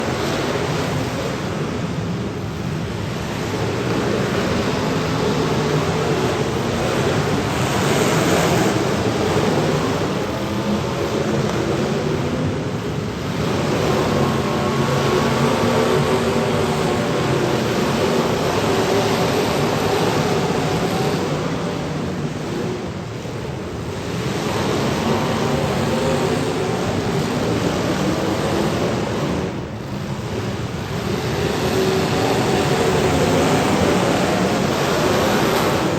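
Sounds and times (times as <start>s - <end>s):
car engines running: 0.0s - 35.9s.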